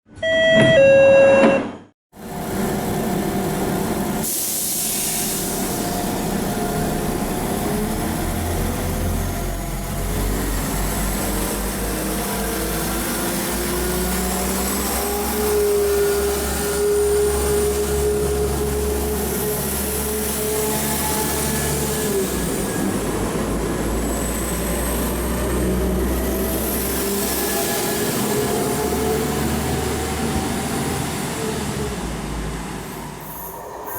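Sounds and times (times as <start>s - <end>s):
train wheels rumbling: 2.2s - 33.9s.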